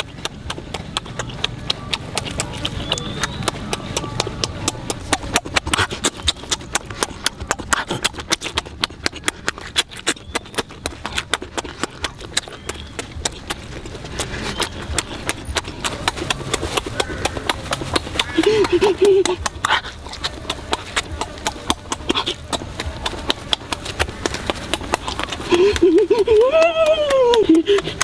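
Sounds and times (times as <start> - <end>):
wet lip-smacking and chewing: 0.0 - 28.0.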